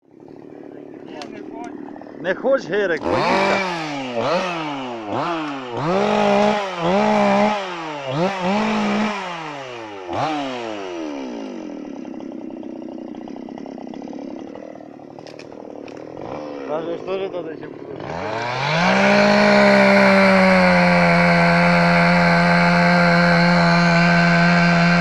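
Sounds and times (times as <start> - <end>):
chainsaw engine revving and idling: 0.1 - 25.0.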